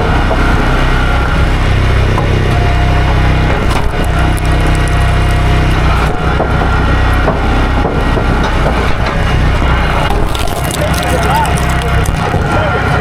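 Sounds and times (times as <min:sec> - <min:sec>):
small gasoline engine running: 0:01.8 - 0:07.6, 0:09.7 - 0:12.3
wood cracking and splintering: 0:03.5 - 0:06.3, 0:09.7 - 0:12.6.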